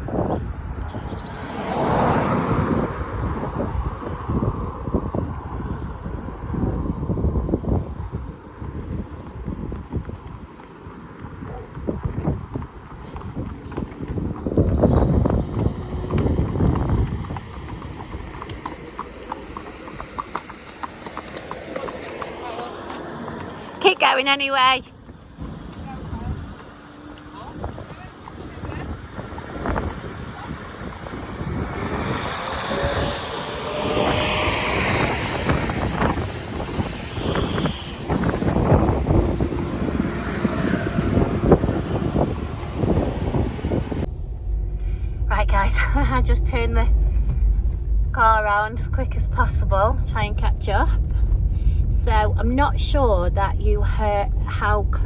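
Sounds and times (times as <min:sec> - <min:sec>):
wind and traffic rumble: 0:00.0 - 0:55.0
hooves clip-clopping on tarmac: 0:00.1 - 0:44.1.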